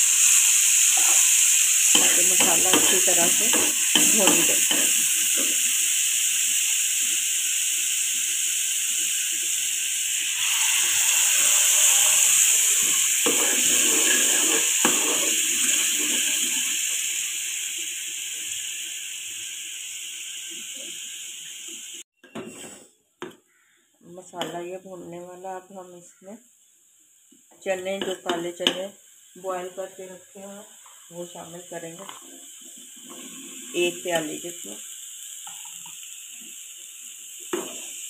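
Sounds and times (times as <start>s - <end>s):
masala sizzling in frying pan: 0.0s - 22.1s, 24.2s - 38.0s
steel spoon scraping pan: 1.0s - 5.6s, 11.5s - 16.7s.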